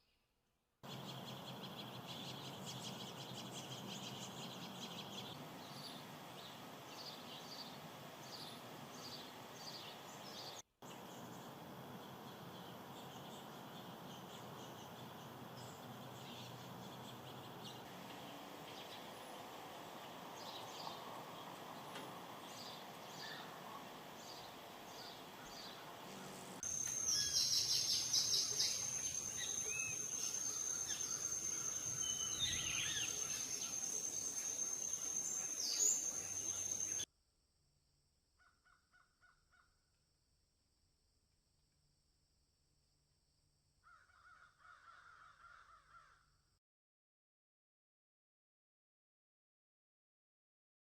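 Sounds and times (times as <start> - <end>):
outdoor background noise: 0.8 - 37.1
birds calling: 0.9 - 37.0
steady high-pitched whine: 17.8 - 37.1.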